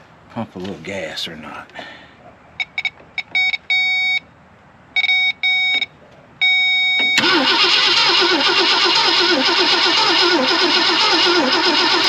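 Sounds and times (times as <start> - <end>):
short electronic beeps: 2.6 - 4.2, 5.0 - 7.3
starter motor cranking engine: 7.2 - 12.0.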